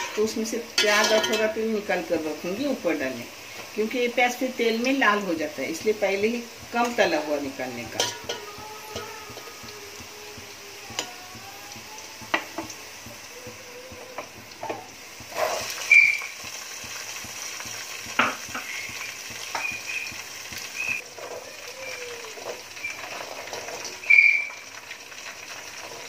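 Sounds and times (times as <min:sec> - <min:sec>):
onions sizzling in oil: 0:00.0 - 0:26.0
ladle scraping and clinking pot: 0:07.9 - 0:09.1.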